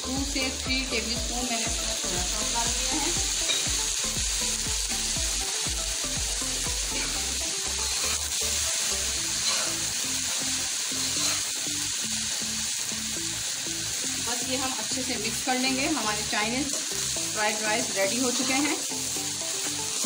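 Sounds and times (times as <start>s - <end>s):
food sizzling in a wok: 0.0s - 20.0s
spatula tossing food: 7.8s - 9.9s, 11.0s - 11.6s.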